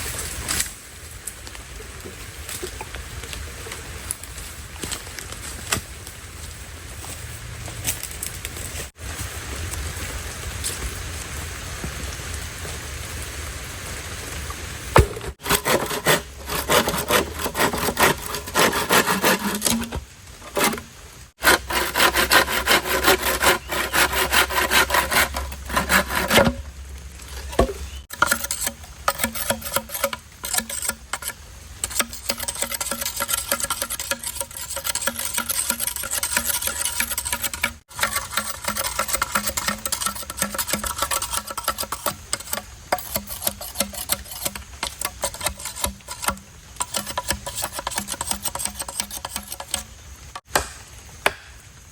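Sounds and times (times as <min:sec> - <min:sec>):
rain hiss: 0:00.0 - 0:15.4, 0:26.6 - 0:27.4, 0:28.0 - 0:32.3, 0:49.6 - 0:51.9
hand saw cutting wood: 0:15.0 - 0:26.7, 0:27.4 - 0:51.4.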